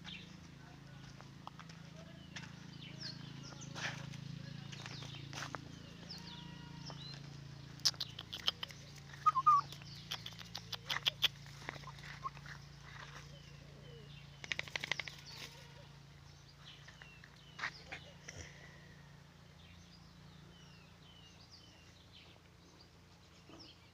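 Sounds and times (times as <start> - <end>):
birds chirping: 0.0 - 23.9.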